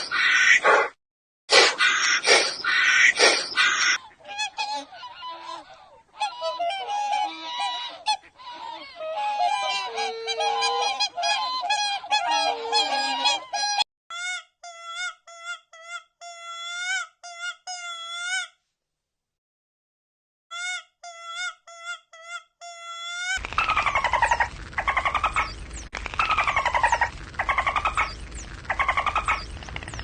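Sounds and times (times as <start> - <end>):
flock of geese honking: 3.0 - 13.8.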